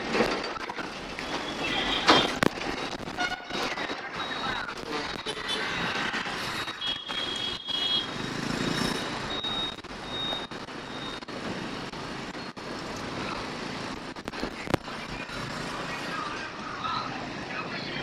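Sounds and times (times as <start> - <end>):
passing vehicles: 0.0 - 18.0
radio interference crackle: 0.6 - 8.2, 8.8 - 18.0
short high beeps: 9.2 - 11.2.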